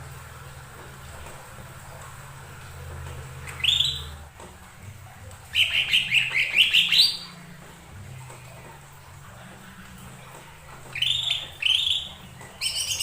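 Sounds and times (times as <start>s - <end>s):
bird singing whistled notes: 3.5s - 4.2s, 5.5s - 7.3s, 10.9s - 13.0s.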